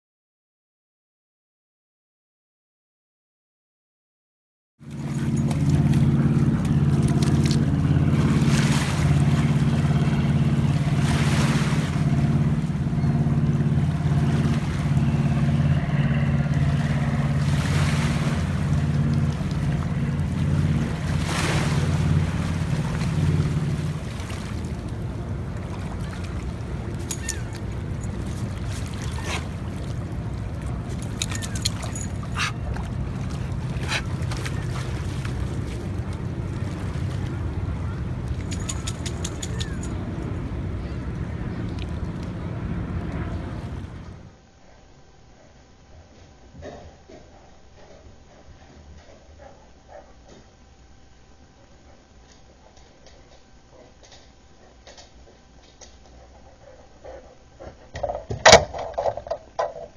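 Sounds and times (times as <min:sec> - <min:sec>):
engine running: 0:04.8 - 0:44.4.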